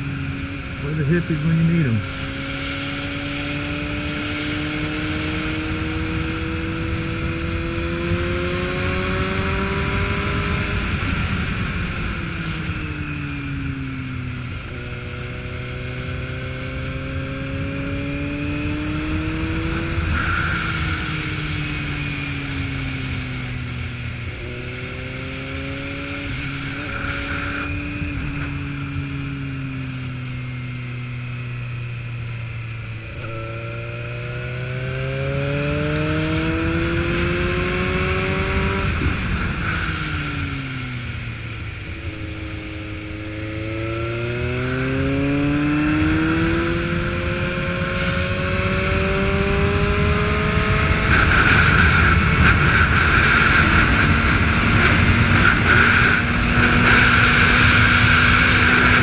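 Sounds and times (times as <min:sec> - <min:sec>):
motorcycle engine accelerating: 0:00.0 - 0:59.0
wind noise: 0:17.3 - 0:29.8, 0:35.4 - 0:59.0.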